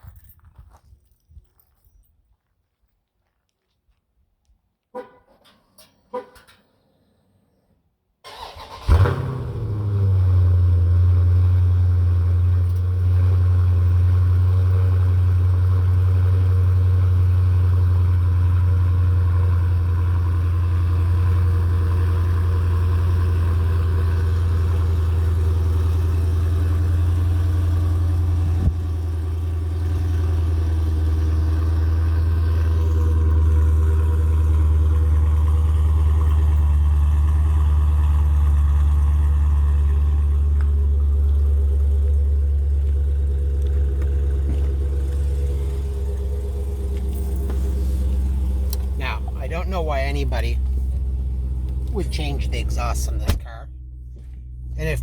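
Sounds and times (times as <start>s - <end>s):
car engine idling: 8.3s - 55.0s.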